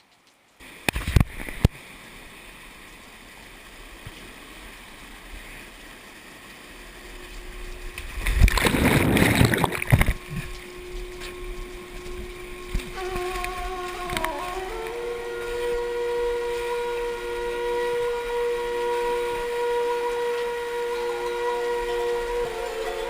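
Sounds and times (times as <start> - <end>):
water splashing: 0.0 - 23.0
mountain stream rushing: 0.6 - 23.0
music notes: 10.1 - 23.0.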